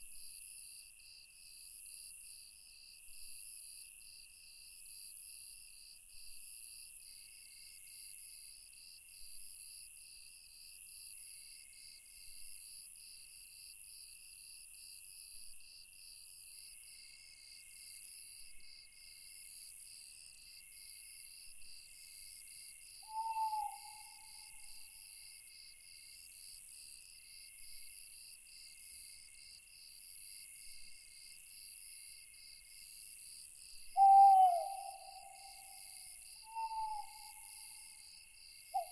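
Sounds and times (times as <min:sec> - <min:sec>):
chorus of crickets and insects: 0:00.0 - 0:38.9
owl hooting: 0:23.0 - 0:24.6, 0:34.0 - 0:38.0.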